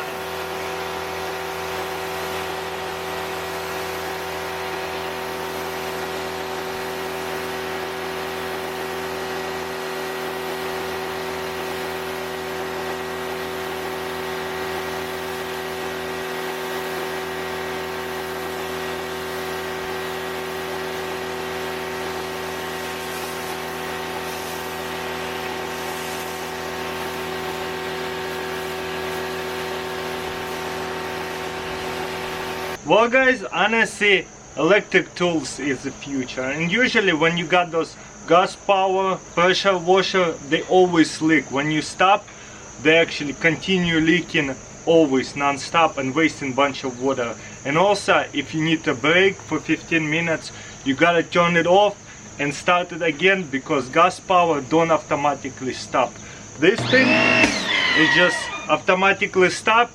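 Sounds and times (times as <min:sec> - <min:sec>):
water spray hissing: 0:00.0 - 0:32.8, 0:56.8 - 0:58.9
pressure washer motor whine: 0:00.0 - 0:38.6, 0:56.2 - 0:59.9.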